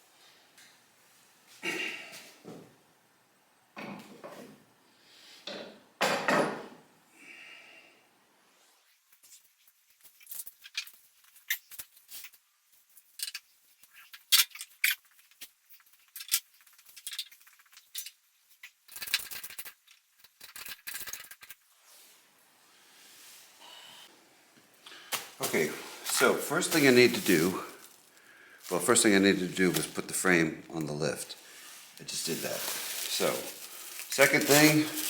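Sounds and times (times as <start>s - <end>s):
scraping rustle: 25.2s - 30.4s, 31.2s - 35.0s.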